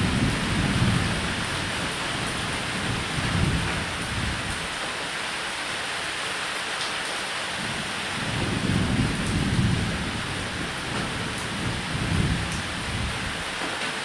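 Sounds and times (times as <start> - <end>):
rain falling on a roof: 0.0 - 14.0
thunder rolling: 8.2 - 13.5.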